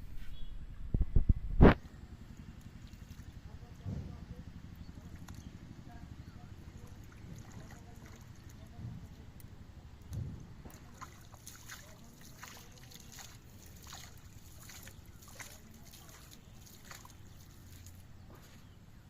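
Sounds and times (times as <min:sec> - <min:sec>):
low steady rumble: 0:00.0 - 0:19.0
water splashing: 0:06.5 - 0:09.3, 0:10.6 - 0:18.1.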